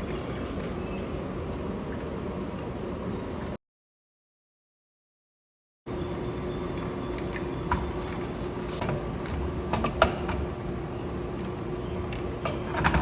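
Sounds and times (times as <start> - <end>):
mechanical hum: 0.0 - 3.6, 5.8 - 13.0.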